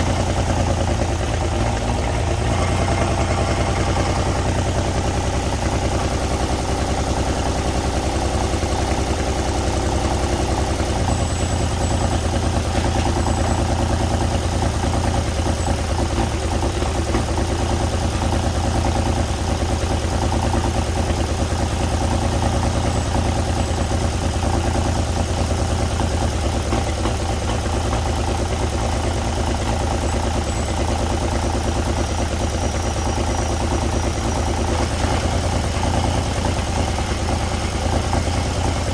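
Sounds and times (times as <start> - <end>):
truck engine running at idle: 0.0 - 38.9.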